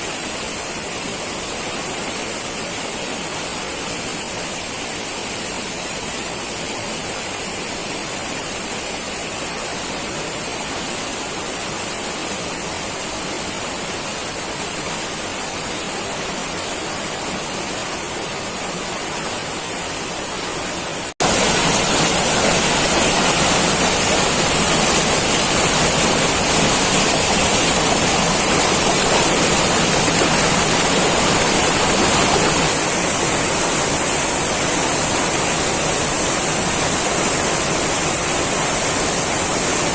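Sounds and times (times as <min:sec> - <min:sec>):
heavy rain pouring: 0:09.4 - 0:39.9.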